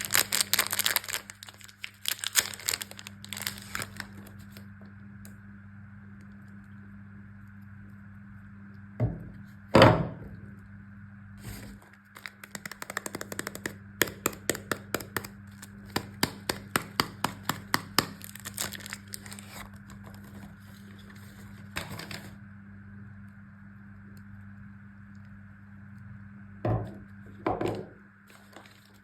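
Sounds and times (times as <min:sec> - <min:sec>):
packaging crackling and tearing: 0:00.0 - 0:04.6, 0:11.4 - 0:22.4, 0:28.3 - 0:29.0.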